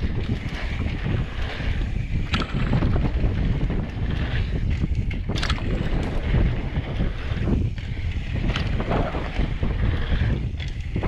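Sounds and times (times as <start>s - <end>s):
bike tyres rolling on dirt: 0.0s - 11.0s
wind buffeting microphone: 0.0s - 11.0s
sharp rattle: 2.1s - 3.3s.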